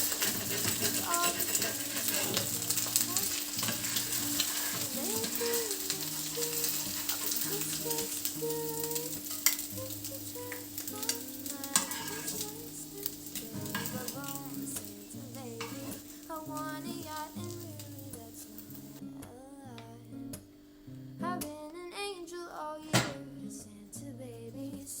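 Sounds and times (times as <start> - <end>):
food sizzling in a pan: 0.0 - 19.1.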